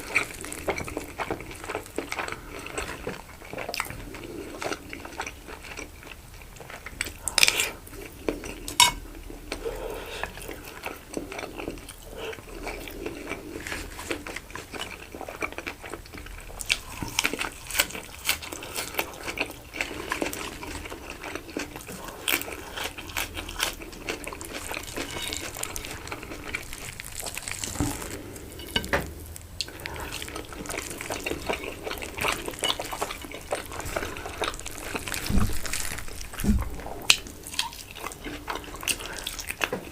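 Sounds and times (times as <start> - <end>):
person eating: 0.0 - 39.9
cutlery clinking on a plate: 8.8 - 9.0.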